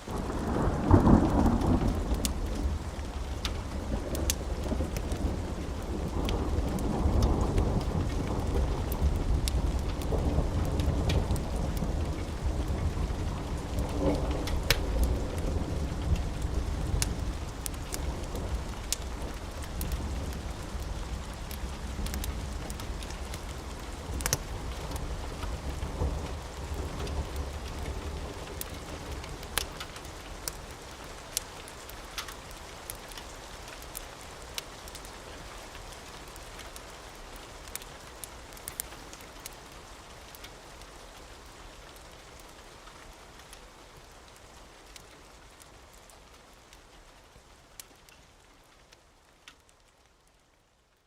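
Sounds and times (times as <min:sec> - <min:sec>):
steady rain: 0:00.0 - 0:51.0
wood fire crackling: 0:00.0 - 0:51.0
thunder rumbling: 0:00.1 - 0:30.2.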